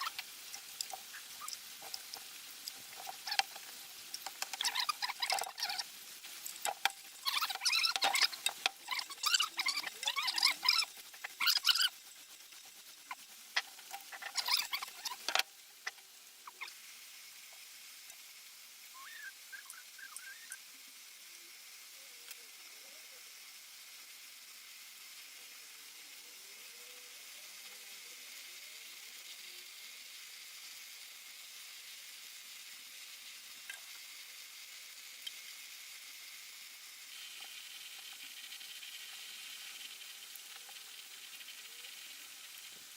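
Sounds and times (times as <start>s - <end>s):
small metal parts clicking and rattling: 0.0s - 16.8s
faint steady hiss: 0.0s - 42.9s.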